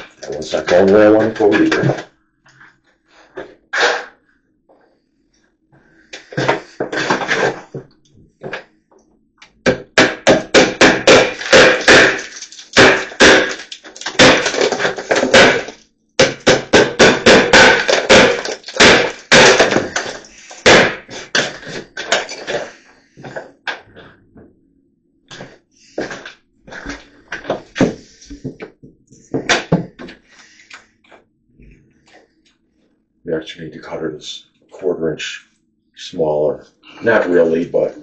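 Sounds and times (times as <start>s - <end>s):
hammer striking nails: 9.6s - 22.6s.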